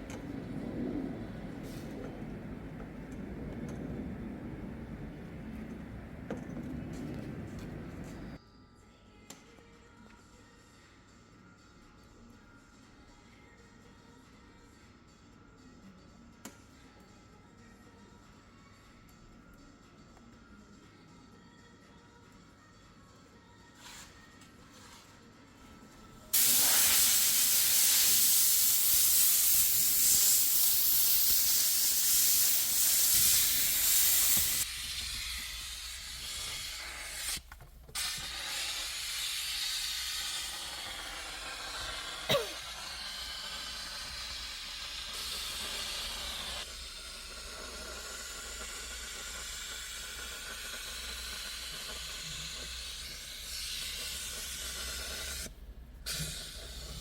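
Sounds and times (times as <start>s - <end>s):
cleaning jet hissing: 26.4s - 37.4s, 38.0s - 55.5s.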